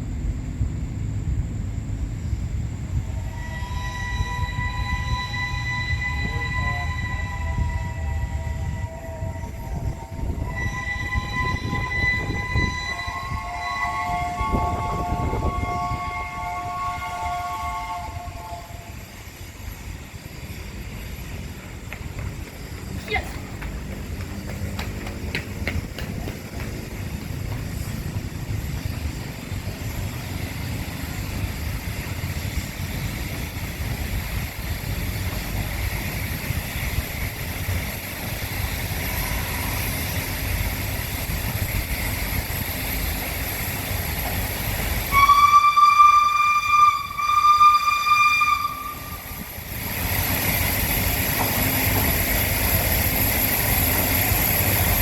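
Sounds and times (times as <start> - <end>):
train rumbling slowly: 0.0 - 55.0
steam locomotive whistle: 3.0 - 19.3, 44.9 - 49.8.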